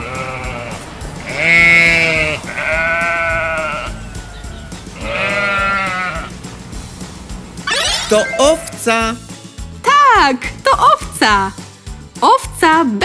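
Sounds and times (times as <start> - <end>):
sheep bleating: 0.0 - 4.4, 5.0 - 6.3
light background music: 0.0 - 13.0.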